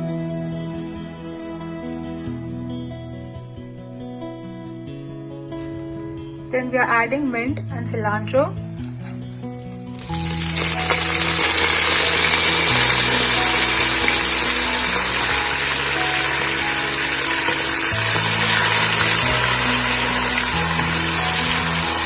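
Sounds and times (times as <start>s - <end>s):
herbs sizzling in hot oil: 8.2s - 22.0s.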